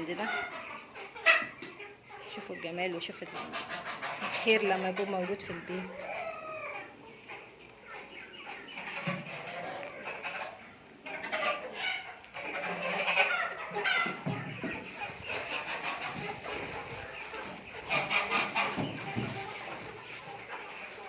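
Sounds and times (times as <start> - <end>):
chickens clucking: 0.0 - 21.0
poultry calling: 0.0 - 21.0.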